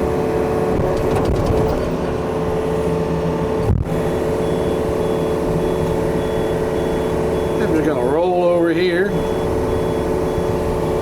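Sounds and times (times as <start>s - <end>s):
excavator diesel engine running: 0.0s - 11.0s
travel alarm beeping: 4.0s - 11.0s.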